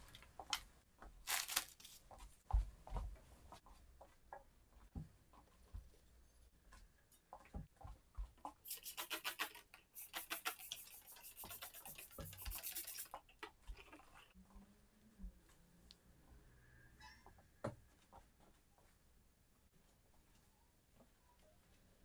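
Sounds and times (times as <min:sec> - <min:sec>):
rapid hissy rubbing strokes: 0:08.7 - 0:13.1.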